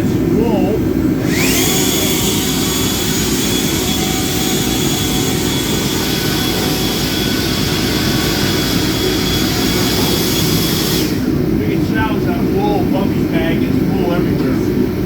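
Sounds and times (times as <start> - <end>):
leaf blower running: 0.9 - 12.4.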